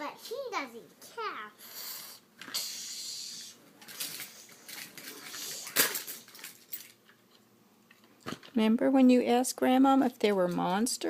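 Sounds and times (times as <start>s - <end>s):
toy cars clattering together: 3.8s - 7.0s.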